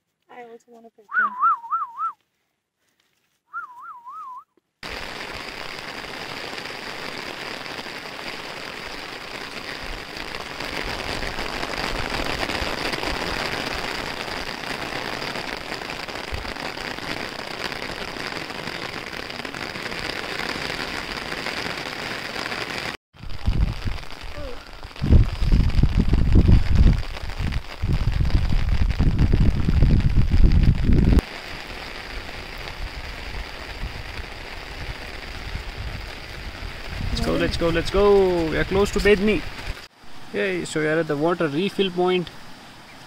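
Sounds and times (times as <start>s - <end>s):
warbling whistle: 1.1s - 2.2s, 3.5s - 4.5s
rain hissing: 4.8s - 43.0s.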